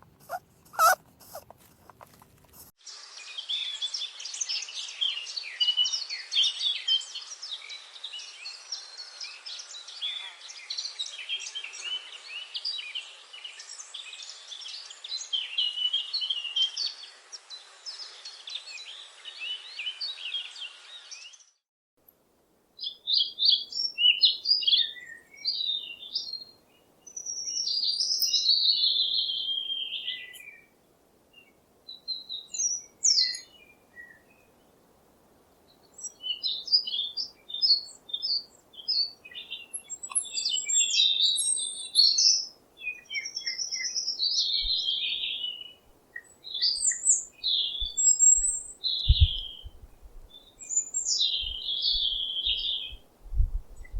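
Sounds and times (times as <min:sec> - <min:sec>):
birds chirping: 0:00.0 - 0:02.6, 0:36.0 - 0:45.8, 0:46.4 - 0:53.9
bird song warbling: 0:00.2 - 0:01.4, 0:22.8 - 0:30.7, 0:31.4 - 0:34.6, 0:35.8 - 0:53.9.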